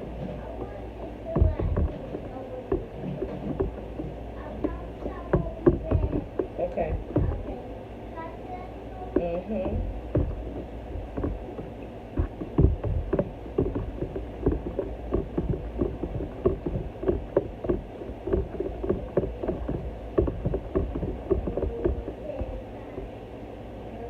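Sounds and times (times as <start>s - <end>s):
liquid sloshing in jug: 0.0s - 7.7s, 9.1s - 23.3s
knocks against container: 9.1s - 23.1s.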